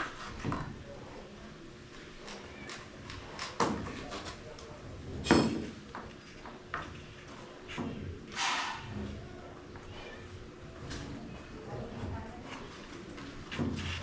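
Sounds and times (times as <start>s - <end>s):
hand tools knocking and clattering: 5.2s - 6.9s
short hissing scrape: 8.3s - 8.9s.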